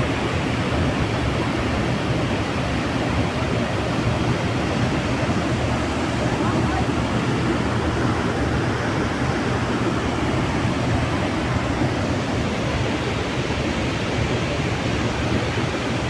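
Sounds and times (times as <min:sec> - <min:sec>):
waterfall rushing: 0:01.6 - 0:15.2.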